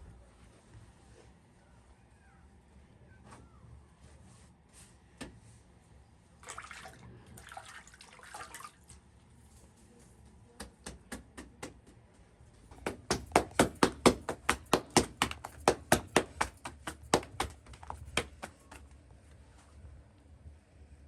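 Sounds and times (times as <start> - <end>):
rapid sharp knocks: 12.7 - 18.8.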